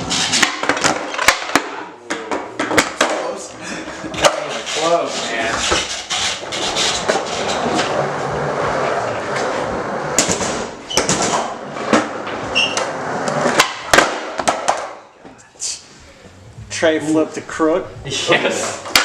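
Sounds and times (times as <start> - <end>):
skateboard clacks and slaps: 0.0 - 3.4, 4.2 - 4.6, 10.1 - 15.0, 18.8 - 19.0
skateboard wheels rolling: 0.0 - 15.0.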